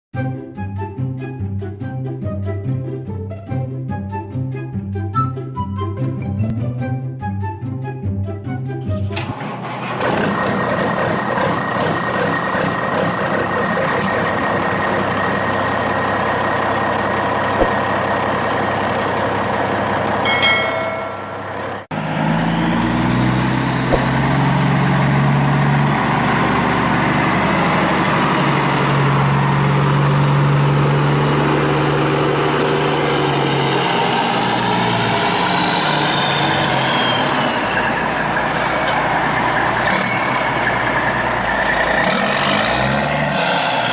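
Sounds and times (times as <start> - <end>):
heavy truck engine running: 8.8 - 43.9
engine whine: 8.9 - 43.9.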